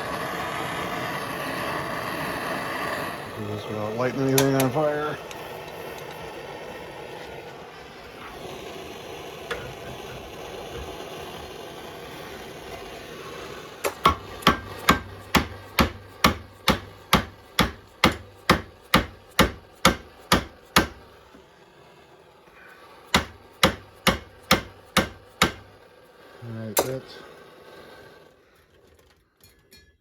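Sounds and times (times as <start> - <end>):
torch hissing: 0.0 - 28.9
hammer striking metal: 13.9 - 21.0, 23.1 - 25.7.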